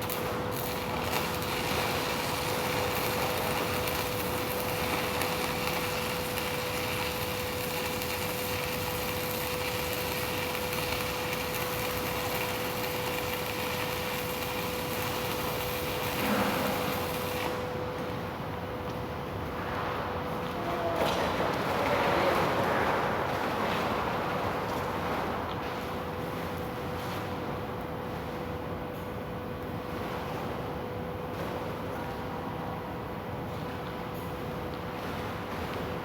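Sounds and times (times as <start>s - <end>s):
steady machine noise: 0.6s - 17.8s.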